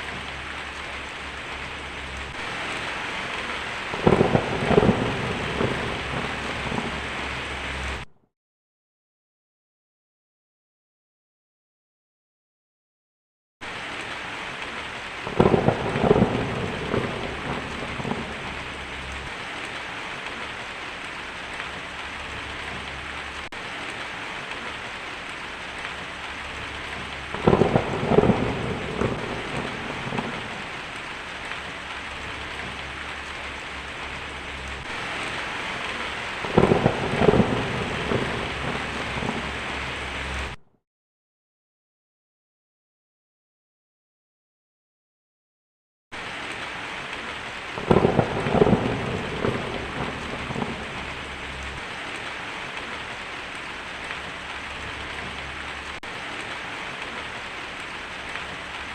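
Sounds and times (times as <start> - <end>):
heavy rain: 0.0 - 8.1, 13.6 - 40.6, 46.2 - 58.9
rolling thunder: 0.0 - 8.1, 15.2 - 19.5, 25.5 - 40.6, 47.8 - 52.2.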